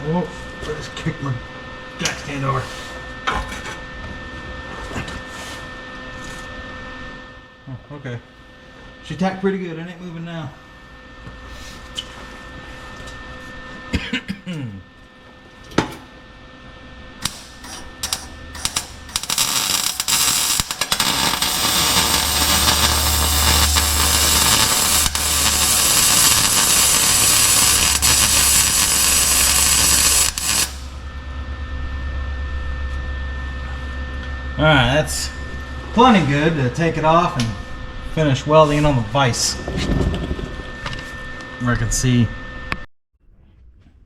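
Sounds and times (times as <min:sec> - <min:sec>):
welder hum: 0:17.0 - 0:37.7
welder crackling sizzle: 0:17.2 - 0:31.0.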